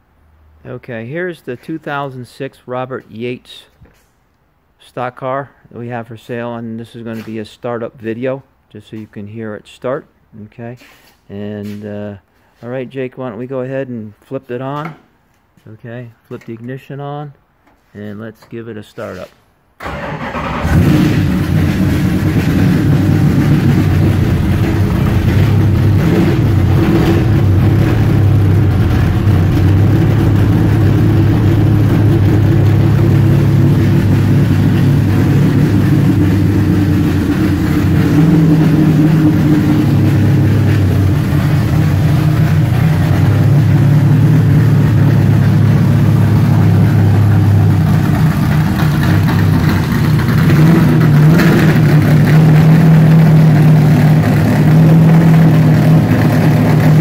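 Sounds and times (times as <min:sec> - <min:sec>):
race car engine running: 0:19.8 - 0:57.0.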